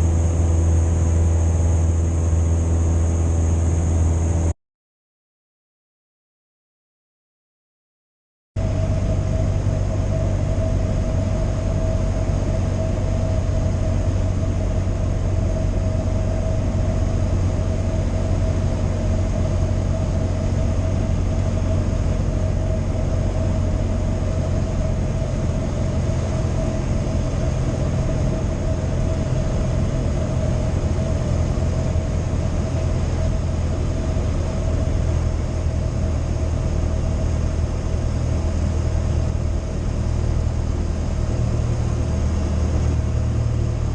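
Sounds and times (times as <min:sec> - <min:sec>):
light aircraft engine droning: 0:00.0 - 0:04.6, 0:08.6 - 0:43.9.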